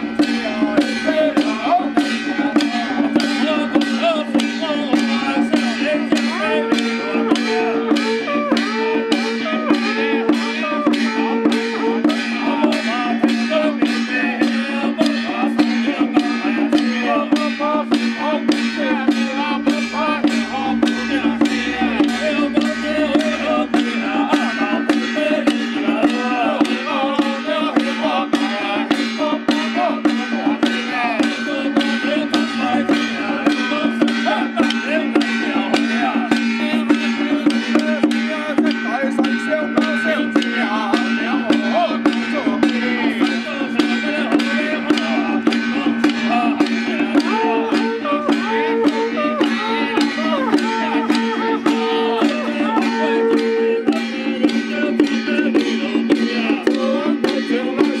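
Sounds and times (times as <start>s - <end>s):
percussion striking evenly: 0.0s - 58.0s
wavering melody over drone: 18.2s - 25.3s.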